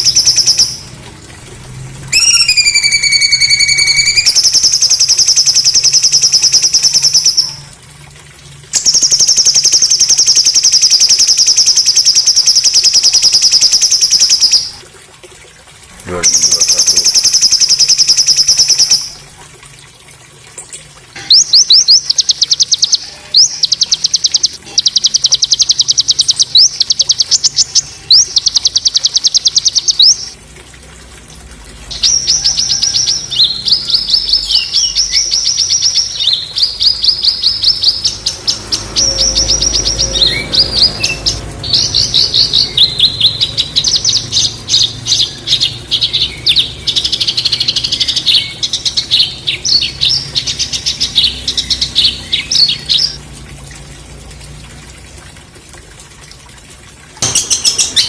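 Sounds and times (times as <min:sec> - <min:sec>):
songbird singing harsh high notes: 0:02.1 - 0:07.6, 0:16.1 - 0:19.2.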